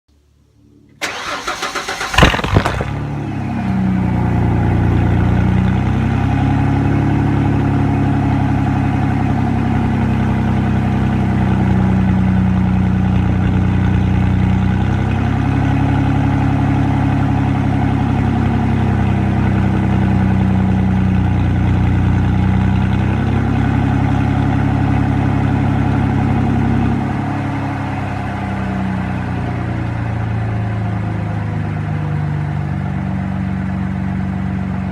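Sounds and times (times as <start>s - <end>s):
engine starter cranking: 1.0s - 3.0s
truck engine idling loudly: 1.0s - 34.9s.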